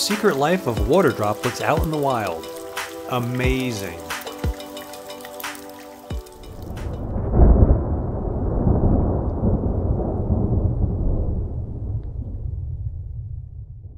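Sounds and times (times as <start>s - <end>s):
music: 0.0s - 7.3s
rain on water: 0.0s - 13.2s
low rumble: 6.6s - 13.9s.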